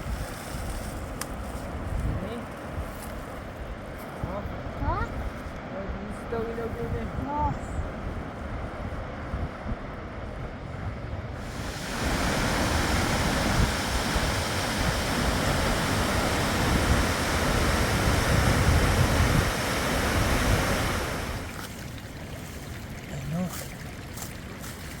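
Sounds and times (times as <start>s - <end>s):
river water rushing: 11.4s - 25.0s.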